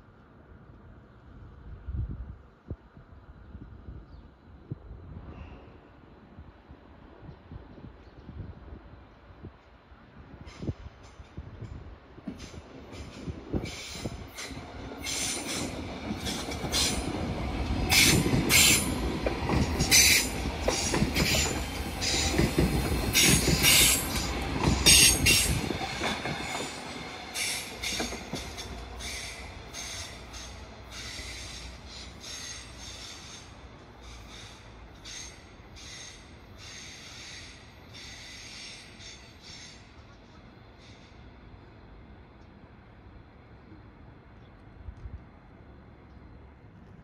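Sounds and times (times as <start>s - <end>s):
train rumble: 0.0s - 47.0s
train wheels squealing: 12.4s - 17.2s, 17.9s - 41.4s.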